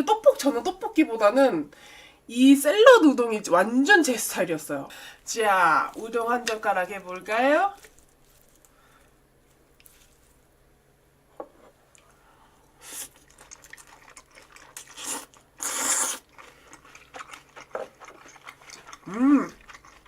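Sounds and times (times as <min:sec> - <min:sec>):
person slurping noodles: 0:12.8 - 0:20.0
wet chewing with clicks: 0:13.0 - 0:20.0.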